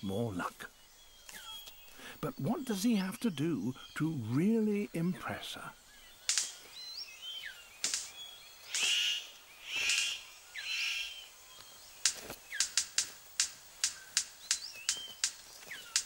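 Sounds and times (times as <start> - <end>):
harsh rasping bird calls: 0.0 - 16.0
thin whistled bird notes: 0.6 - 2.2, 5.8 - 16.0
sharp bird clicks: 1.2 - 2.0, 6.0 - 16.0.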